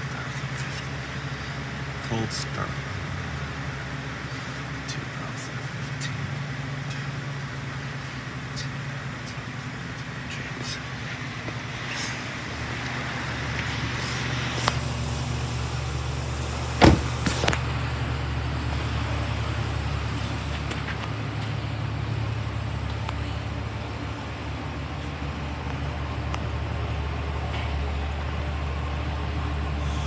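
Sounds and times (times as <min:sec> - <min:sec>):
pickup engine idling: 0:00.0 - 0:20.8.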